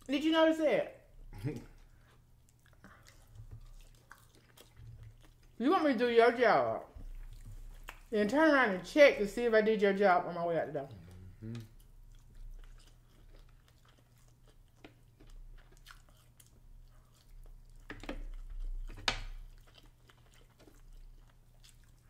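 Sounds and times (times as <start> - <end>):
faint low hum: 0.0 - 22.0
people chewing meat: 1.1 - 5.6, 6.9 - 8.1, 10.8 - 22.0.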